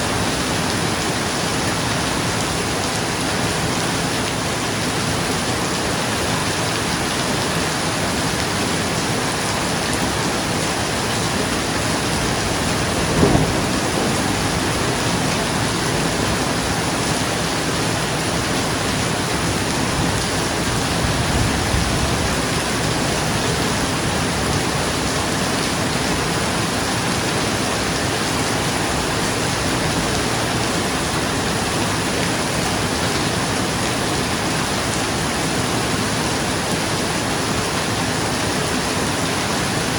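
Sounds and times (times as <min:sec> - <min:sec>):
heavy rain on a roof: 0:00.0 - 0:39.9
low roll of thunder: 0:11.0 - 0:27.9
sharp thunderclap: 0:11.6 - 0:17.9.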